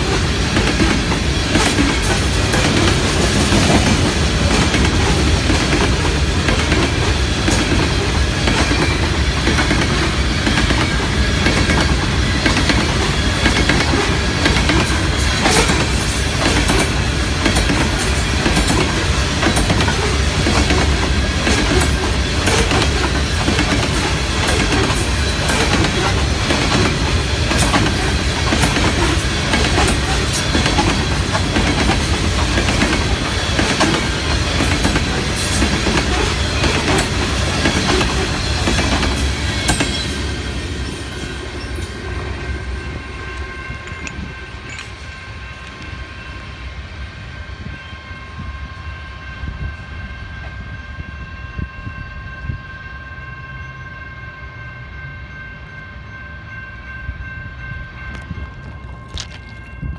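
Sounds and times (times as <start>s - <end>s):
train wheels clacking over rail joints: 0.0s - 41.9s.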